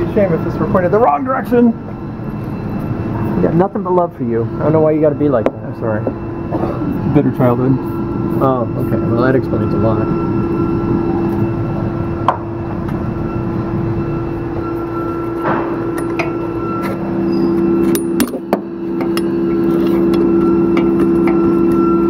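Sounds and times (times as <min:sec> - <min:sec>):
machine hum: 0:00.0 - 0:22.0
steady tone: 0:00.0 - 0:22.0.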